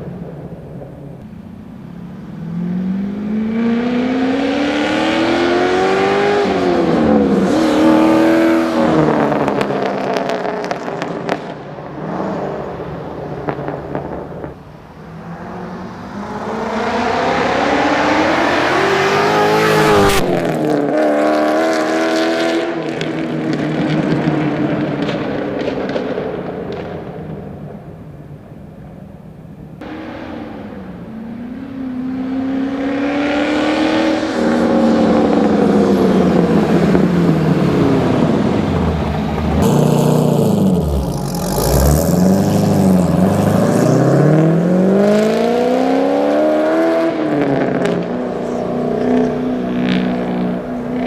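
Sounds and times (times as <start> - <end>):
car engine accelerating hard: 2.4 - 25.4, 29.8 - 51.0.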